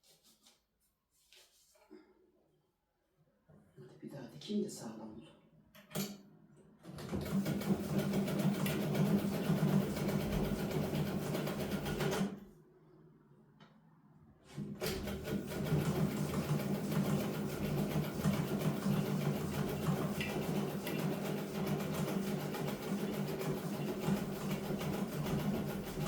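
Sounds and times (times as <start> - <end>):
electric sewing machine stitching: 7.0 - 12.4, 14.6 - 26.0.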